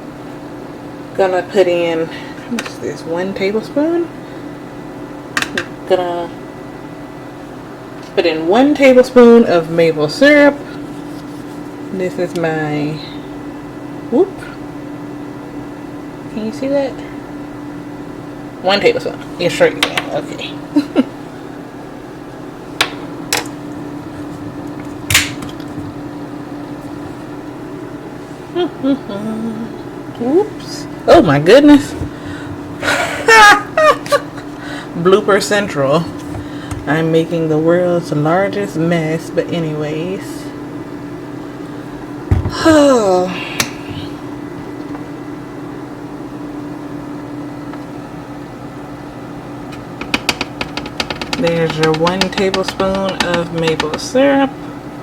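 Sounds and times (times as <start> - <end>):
steady low hum: 0.0 - 55.0
kitchen items knocking: 42.3 - 42.7, 50.0 - 54.2.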